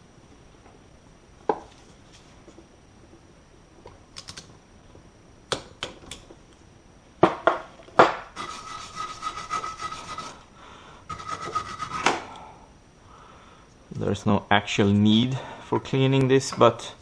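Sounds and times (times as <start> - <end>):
rasping scrubbing: 8.4 - 10.4, 11.1 - 12.2.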